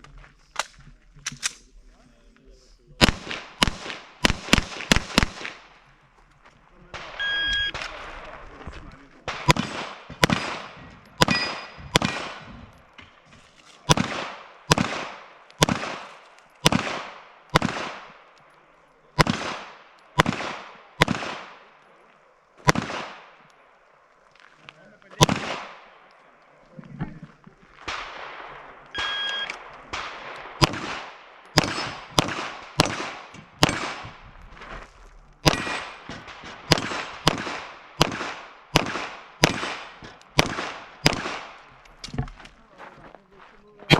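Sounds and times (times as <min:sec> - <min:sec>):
rapid pistol gunshots: 0:03.0 - 0:05.7, 0:09.2 - 0:12.7, 0:13.9 - 0:18.3, 0:19.2 - 0:21.7, 0:22.6 - 0:23.4, 0:25.2 - 0:26.0, 0:27.8 - 0:28.8, 0:29.8 - 0:34.2, 0:35.4 - 0:41.7
steel target ringing: 0:11.2 - 0:12.3.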